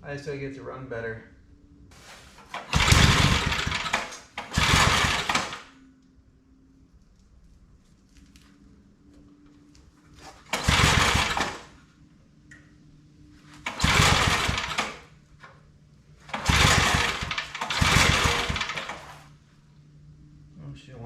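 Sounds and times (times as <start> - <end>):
engine turning over: 2.1 - 5.8, 10.2 - 11.8, 13.5 - 15.2, 16.2 - 19.4.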